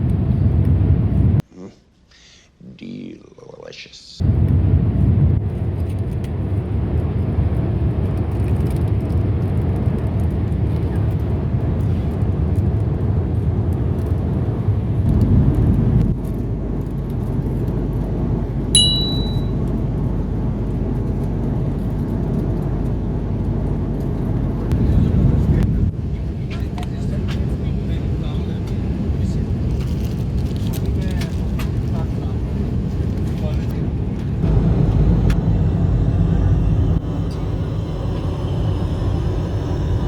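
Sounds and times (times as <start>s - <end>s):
aircraft cabin rumble: 4.2s - 40.0s
short high-pitched beep: 18.8s - 19.6s.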